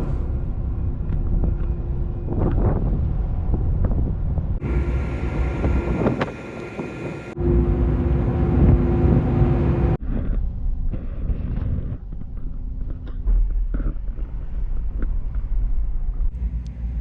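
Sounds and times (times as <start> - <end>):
ferry engine droning: 0.0 - 10.4, 14.4 - 17.0
low rumble: 0.0 - 17.0
wind buffeting microphone: 0.0 - 17.0.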